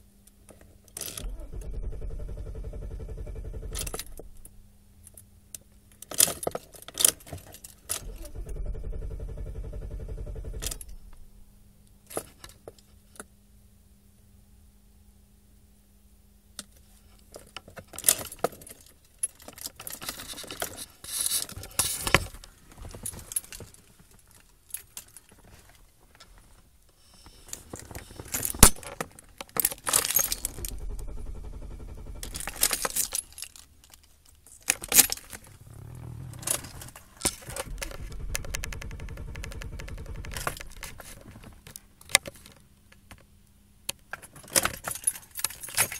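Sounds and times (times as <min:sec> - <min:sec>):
steady low hum: 0:00.0 - 0:06.0, 0:07.6 - 0:12.2, 0:26.0 - 0:33.9, 0:34.9 - 0:42.0
low rumble: 0:30.3 - 0:33.2, 0:35.4 - 0:41.3.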